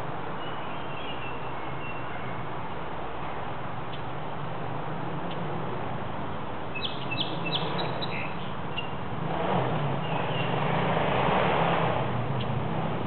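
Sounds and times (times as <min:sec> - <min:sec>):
distant dirt bike engine: 0:06.8 - 0:13.0.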